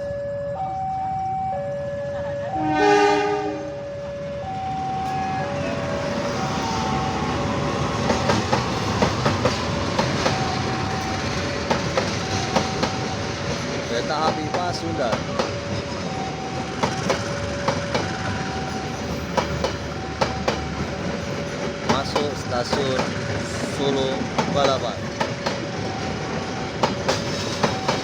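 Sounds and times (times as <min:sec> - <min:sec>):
two-tone warning signal: 0:00.0 - 0:28.0
locomotive horn blast: 0:02.5 - 0:03.9
wheels clacking over rail joints: 0:05.0 - 0:28.0.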